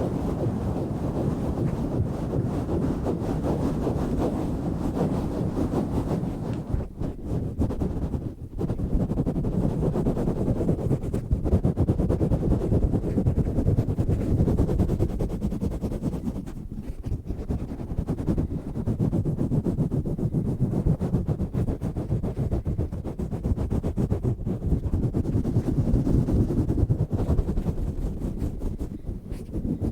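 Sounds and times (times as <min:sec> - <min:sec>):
microphone cover rubbing: 0:00.0 - 0:29.9.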